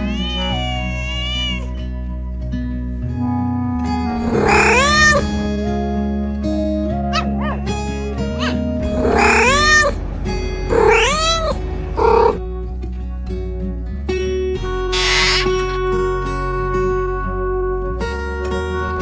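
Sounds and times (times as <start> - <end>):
cat meowing: 0.0 - 2.2, 4.1 - 5.6, 8.2 - 10.0, 10.7 - 12.4
background music: 0.0 - 19.0.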